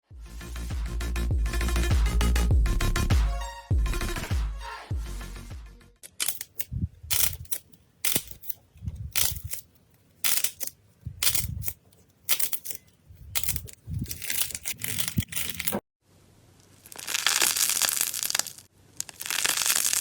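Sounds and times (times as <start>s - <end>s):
electronic music: 0.2s - 6.0s
slime crackling and popping: 16.8s - 20.0s.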